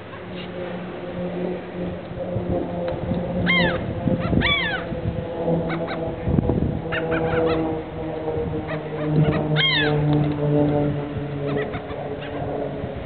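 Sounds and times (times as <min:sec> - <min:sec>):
steady low hum: 0:00.0 - 0:13.0
birds calling: 0:03.4 - 0:05.0, 0:05.6 - 0:10.4, 0:11.2 - 0:12.8.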